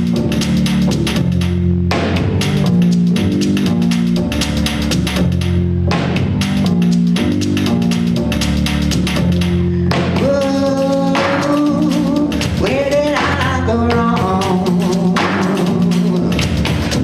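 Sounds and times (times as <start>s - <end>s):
bass line: 0.0s - 17.0s
drum kit: 0.0s - 17.0s.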